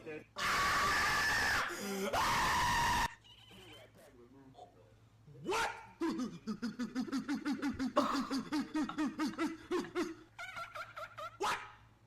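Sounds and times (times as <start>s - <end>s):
rapid laugh-like pulses: 6.0s - 11.5s.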